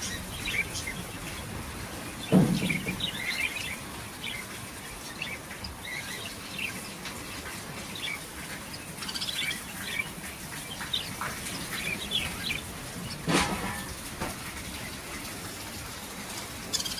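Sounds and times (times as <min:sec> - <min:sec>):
chicks chirping: 0:00.0 - 0:13.3.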